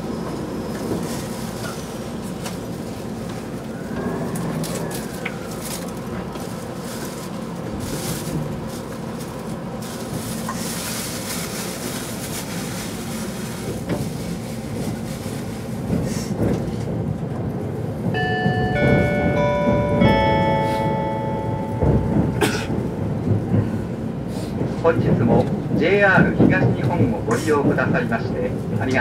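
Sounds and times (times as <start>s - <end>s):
electric train rumbling: 0.0s - 29.0s
multi-note onboard chime: 18.2s - 22.4s.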